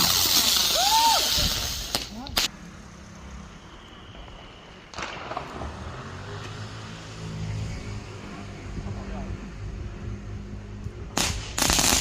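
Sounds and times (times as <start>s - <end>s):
firework hissing sparks: 0.0s - 6.4s, 11.2s - 12.0s.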